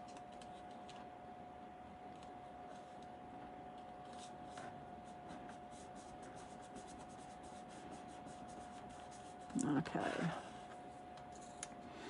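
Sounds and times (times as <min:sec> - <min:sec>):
faint steady hum: 0:00.0 - 0:12.0
paper rubbing strokes: 0:05.0 - 0:09.6.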